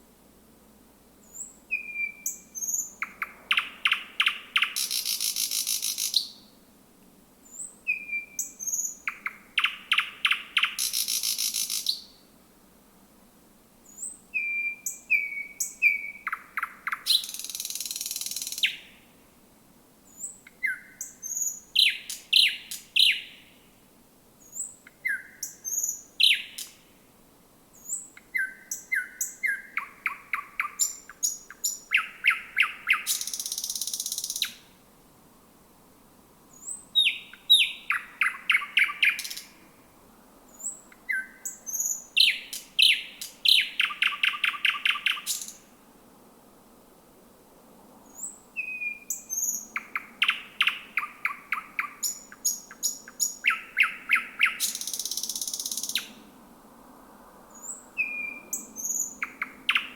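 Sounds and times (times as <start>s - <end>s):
bird singing clicks and whistles: 8.7s - 12.0s.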